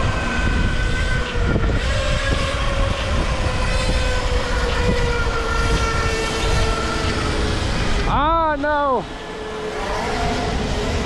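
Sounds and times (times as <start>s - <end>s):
e-bike motor whine: 0.0s - 11.0s
wind rushing over microphone: 0.0s - 11.0s.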